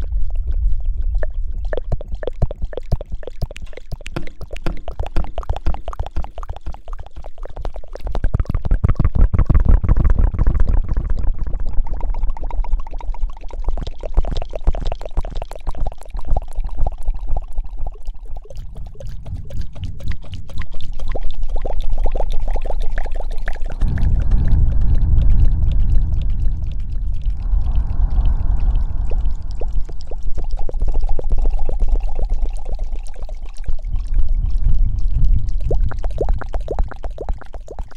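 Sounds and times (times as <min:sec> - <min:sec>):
low rumbling thuds: 0:23.8 - 0:30.4.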